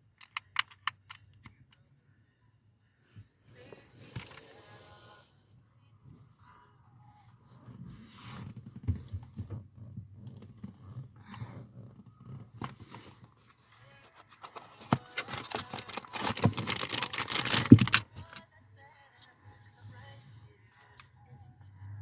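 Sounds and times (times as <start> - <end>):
clicks and knocks of objects handled: 14.1 - 18.4.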